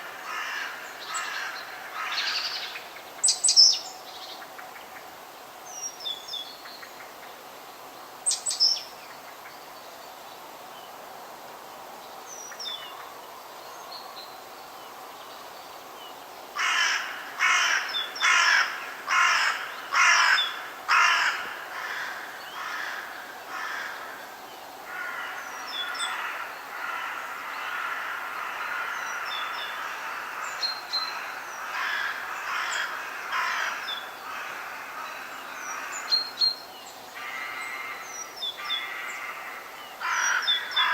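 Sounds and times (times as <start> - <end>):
loud harsh bird calls: 16.6 - 24.3, 24.9 - 36.6, 37.2 - 40.9.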